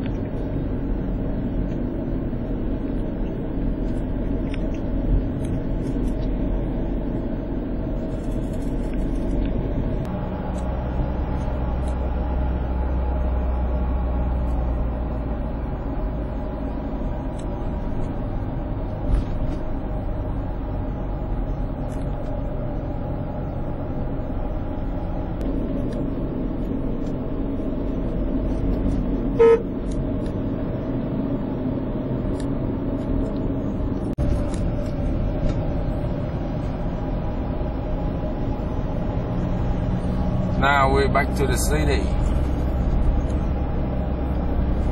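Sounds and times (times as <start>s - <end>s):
highway traffic rumble: 0.0s - 44.9s
vehicle horn toot: 29.4s - 29.8s.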